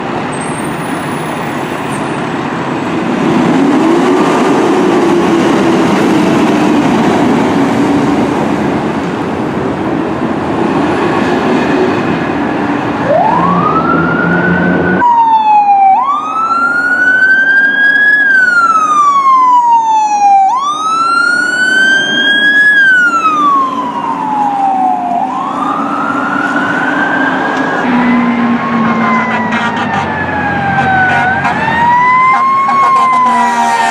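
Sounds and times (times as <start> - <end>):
fire truck engine and road rumble: 0.0 - 33.9
siren wailing: 13.0 - 33.9.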